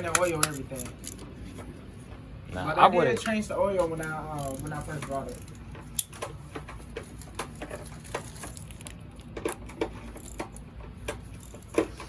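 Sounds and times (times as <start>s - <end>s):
hand tools clicking and knocking: 0.0s - 1.2s.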